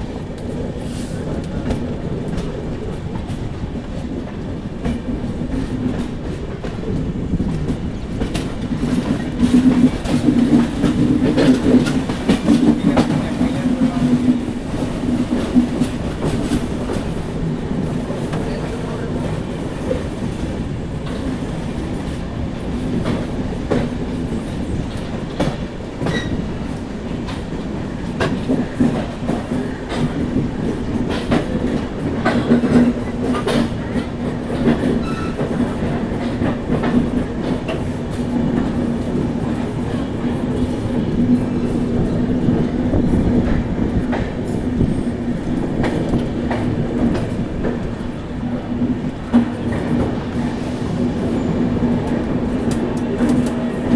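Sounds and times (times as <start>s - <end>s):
train rumbling on rails: 0.0s - 53.9s.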